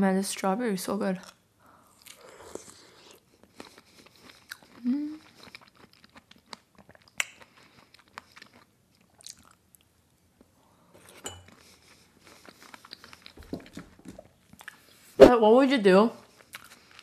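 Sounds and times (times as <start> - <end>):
chewing and mouth sounds: 2.0 - 9.9, 11.5 - 15.0, 16.3 - 17.0.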